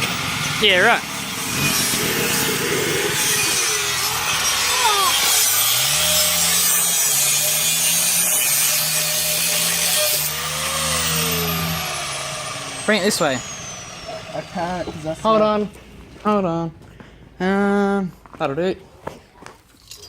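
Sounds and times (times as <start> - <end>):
power saw cutting metal pipe: 0.0 - 15.3.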